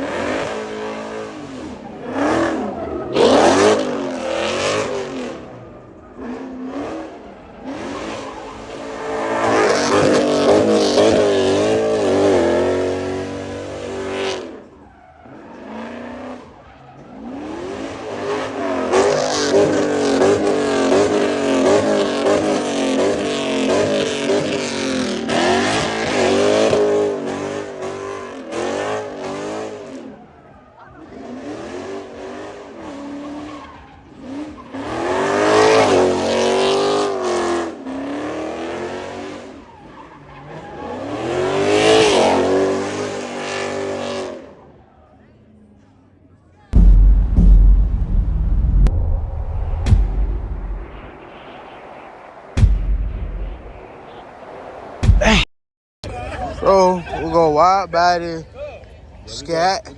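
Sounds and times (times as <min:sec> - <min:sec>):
car engine revving hard: 0:00.0 - 0:30.2, 0:31.0 - 0:39.6, 0:40.4 - 0:44.5.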